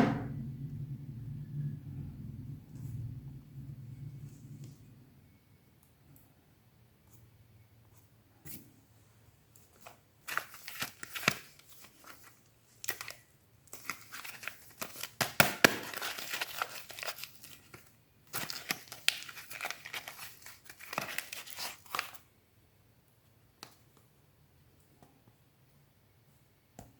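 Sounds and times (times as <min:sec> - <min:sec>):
soap wrapper tearing and crinkling: 0:10.3 - 0:22.2.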